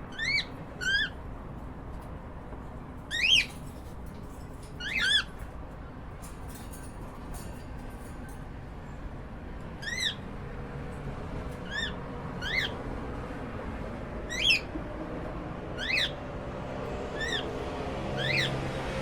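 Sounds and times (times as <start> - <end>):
cockatiel chirping: 0.1 - 1.1, 3.1 - 3.6, 4.8 - 5.3, 11.7 - 12.8, 15.8 - 16.2, 18.2 - 18.5.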